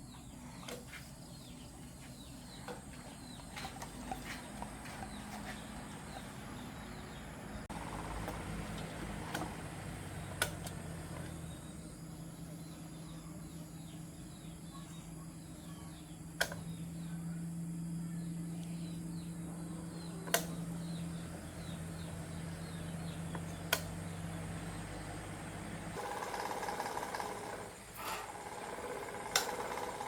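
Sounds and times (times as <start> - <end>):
birds chirping: 0.0 - 30.0
electric fan motor humming: 0.0 - 30.0
noisy mechanical sound: 0.0 - 30.0
sharp click: 20.2 - 20.6.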